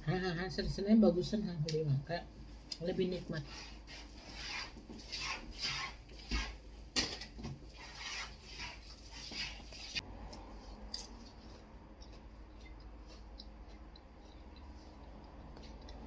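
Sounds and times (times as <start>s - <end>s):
chewing crunchy raw vegetables: 9.7s - 16.0s.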